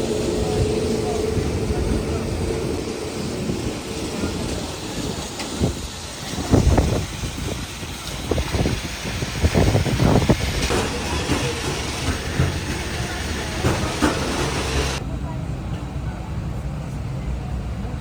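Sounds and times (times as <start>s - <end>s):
vehicle engine rumbling: 0.0s - 18.0s
rattles and thumps: 9.5s - 15.0s.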